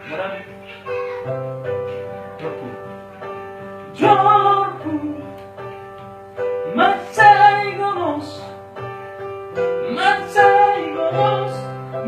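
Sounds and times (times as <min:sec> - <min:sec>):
person singing: 0:00.0 - 0:01.4, 0:02.0 - 0:05.5, 0:06.6 - 0:08.6, 0:09.8 - 0:12.0.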